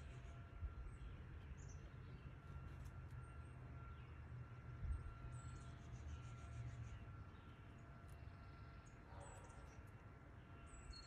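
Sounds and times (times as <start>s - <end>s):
faint small bird chirps: 10.6s - 11.0s.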